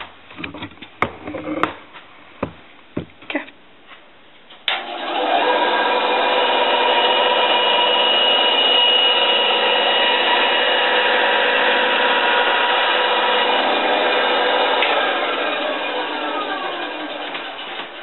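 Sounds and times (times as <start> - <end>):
band saw whining: 4.8 - 18.0
saw cutting wood: 4.8 - 18.0.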